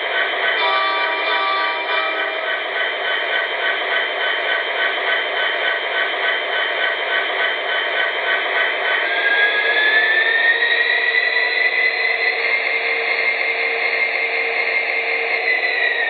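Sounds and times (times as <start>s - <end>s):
diesel locomotive engine through small speaker: 0.0s - 16.0s
locomotive horn note: 0.6s - 2.4s.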